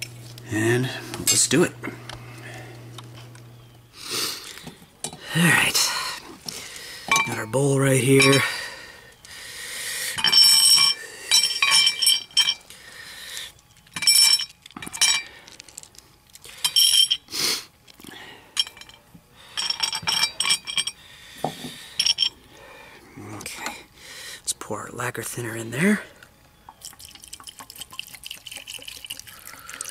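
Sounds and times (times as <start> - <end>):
metal toy parts clinking in bowl: 8.1 - 8.5, 10.2 - 12.6, 14.0 - 15.9.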